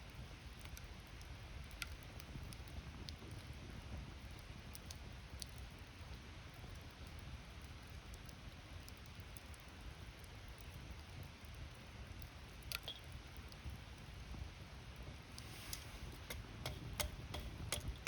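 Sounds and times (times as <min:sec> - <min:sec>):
campfire crackling and popping: 0:00.0 - 0:18.0
low steady rumble: 0:13.8 - 0:18.0.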